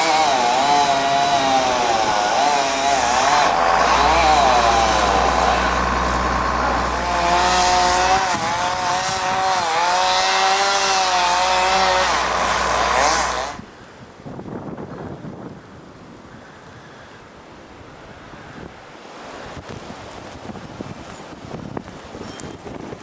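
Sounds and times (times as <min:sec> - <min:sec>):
small gasoline engine running: 0:00.0 - 0:13.6.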